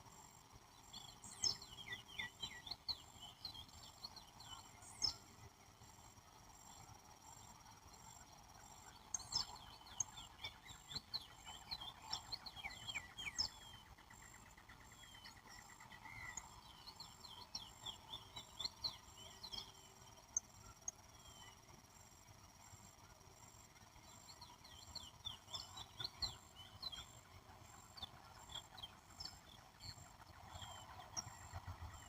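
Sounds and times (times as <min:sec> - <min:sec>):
insects droning: 0:00.0 - 0:32.0
bird trill: 0:00.9 - 0:05.3, 0:08.8 - 0:21.6, 0:24.1 - 0:32.0.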